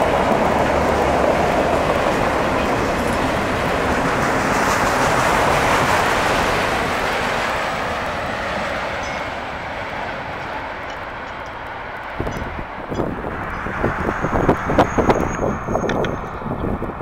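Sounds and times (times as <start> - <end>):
freight train rolling past: 0.0 - 17.0.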